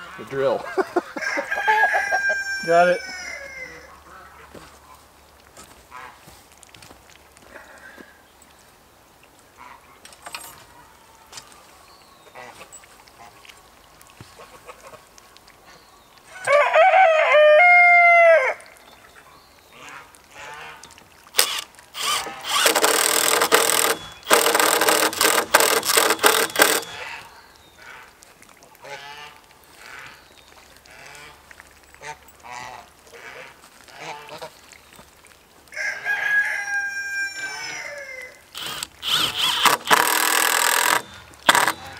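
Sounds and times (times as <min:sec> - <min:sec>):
power drill driving screws: 0:21.4 - 0:27.1, 0:38.5 - 0:41.9.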